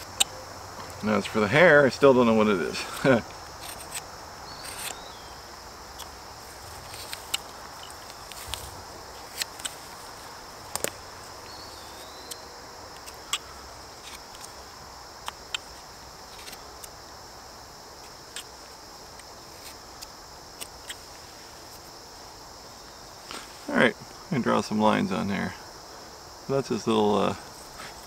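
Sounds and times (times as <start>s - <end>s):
high-pitched insect chorus: 0.0s - 28.0s
sharp ticks and clicks: 5.9s - 6.1s, 12.2s - 14.6s, 15.2s - 17.0s.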